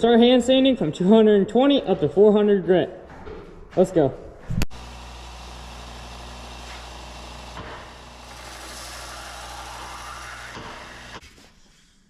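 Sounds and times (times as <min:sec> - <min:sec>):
belt sander motor hum: 0:04.7 - 0:11.2.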